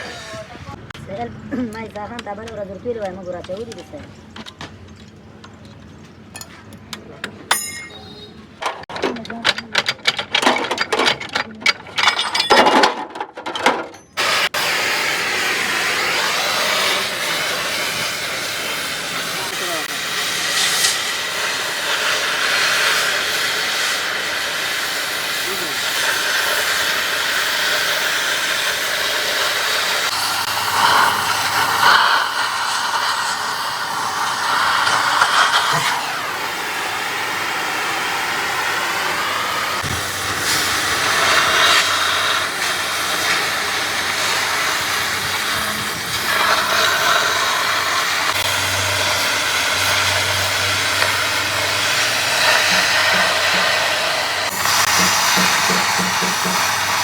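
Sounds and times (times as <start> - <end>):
steady loud hiss: 14.2 - 57.0.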